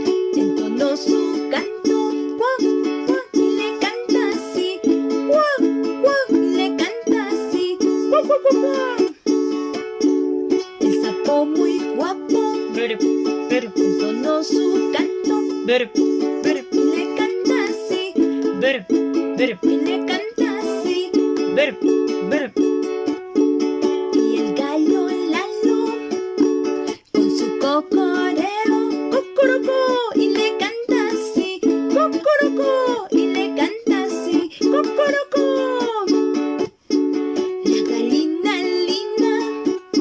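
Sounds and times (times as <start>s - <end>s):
ukulele strumming chords: 0.0s - 40.0s
sliding lead melody: 7.8s - 24.6s.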